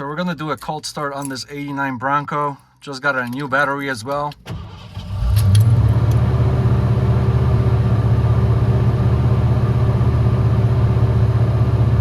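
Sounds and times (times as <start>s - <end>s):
car engine cold start: 4.4s - 10.7s.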